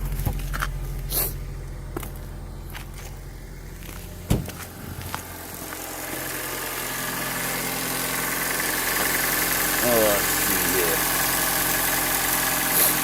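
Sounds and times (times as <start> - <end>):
car engine idling: 0.0 - 13.0
hiss: 11.5 - 13.0.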